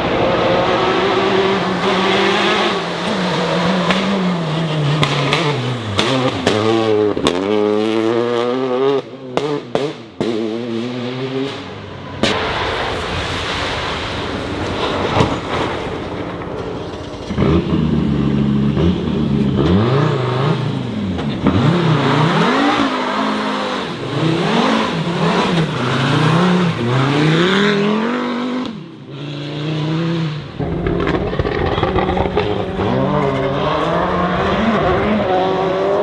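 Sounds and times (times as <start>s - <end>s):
rally car engine revving: 0.0s - 13.0s, 14.3s - 36.0s
tyres on gravel: 12.2s - 19.6s, 30.6s - 34.2s.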